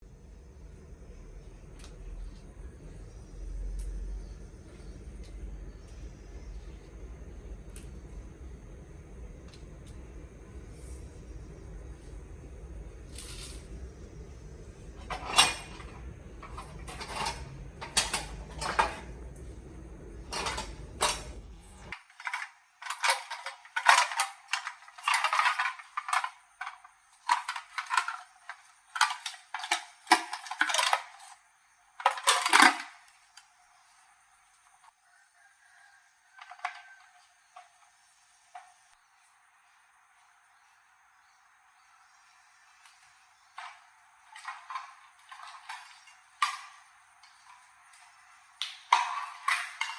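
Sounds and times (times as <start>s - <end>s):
metal objects clinking and clattering: 14.8s - 19.6s, 20.2s - 31.4s, 32.0s - 33.2s, 43.6s - 49.9s.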